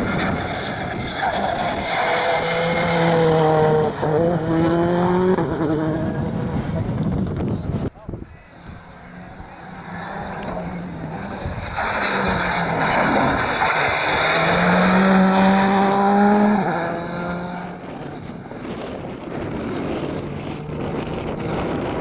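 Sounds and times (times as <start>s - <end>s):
rally car passing at high revs: 0.0s - 7.7s, 8.3s - 22.0s.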